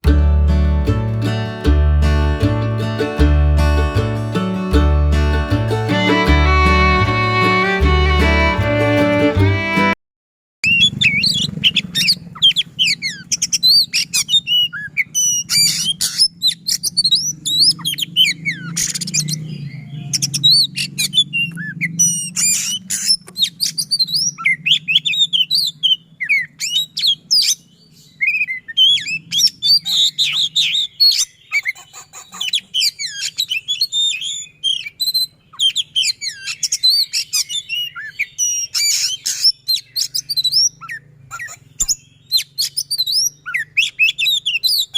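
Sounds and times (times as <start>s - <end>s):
magpie-robin singing: 25.3s - 44.9s.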